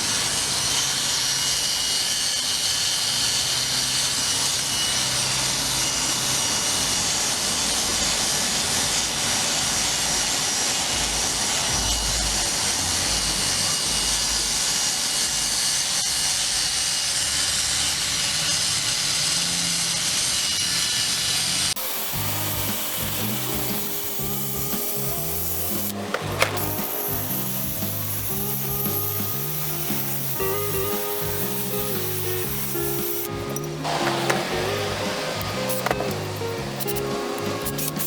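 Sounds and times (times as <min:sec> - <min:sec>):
wire wheel scrubbing metal: 0:00.0 - 0:38.0.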